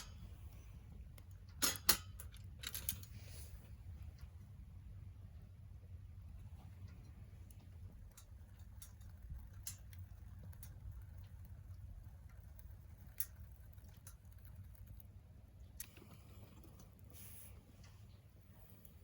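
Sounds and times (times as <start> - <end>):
low steady rumble: 0.0 - 19.0
wood crackling and popping: 6.4 - 18.2.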